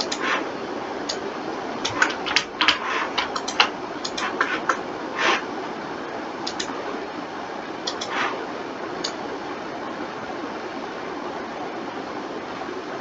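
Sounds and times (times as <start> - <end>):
keyboard and mouse clicking: 0.0 - 0.4, 1.8 - 5.4, 6.5 - 6.7, 7.9 - 8.4
background hiss: 0.0 - 9.6.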